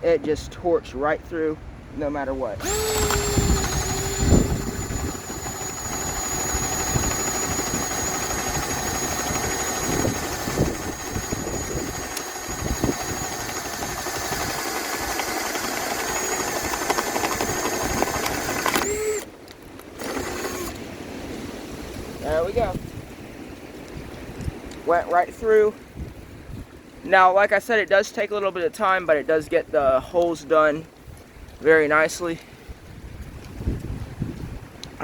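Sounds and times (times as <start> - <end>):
drill bit knocking into wood: 2.6 - 19.3
impact driver whining: 2.6 - 20.9.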